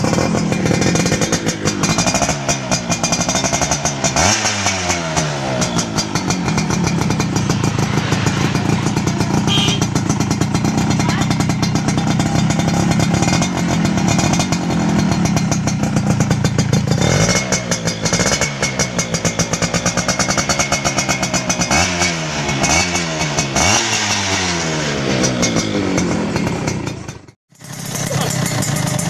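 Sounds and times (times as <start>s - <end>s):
two-stroke motorcycle revving: 0.0s - 29.0s.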